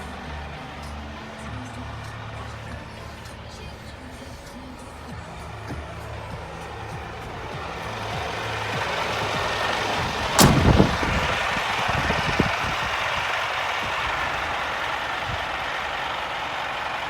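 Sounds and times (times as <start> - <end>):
truck diesel engine running: 7.8 - 17.0
small knock: 10.4 - 11.0
loud sharp thump: 10.4 - 11.2.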